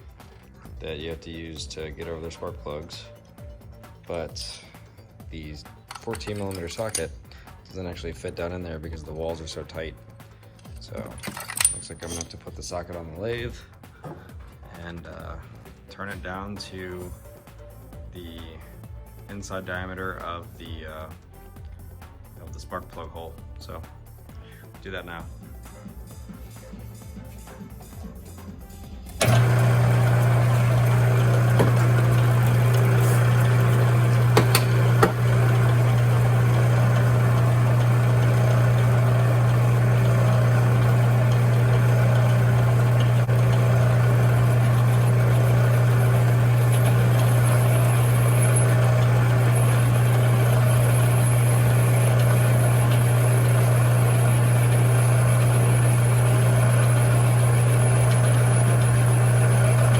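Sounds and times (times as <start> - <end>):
lathe humming: 29.2 - 59.9.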